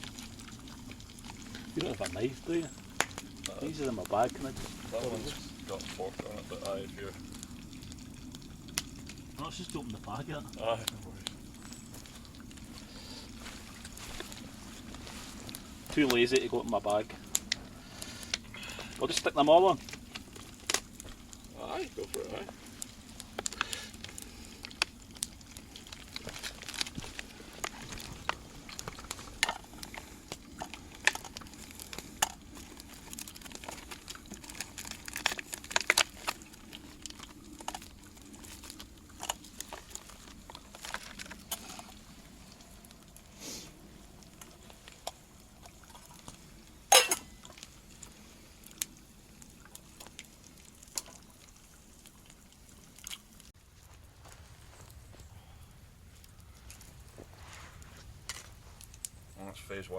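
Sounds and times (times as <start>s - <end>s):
low steady hiss: 0.0s - 59.9s
sausages frying with pops: 0.0s - 59.9s.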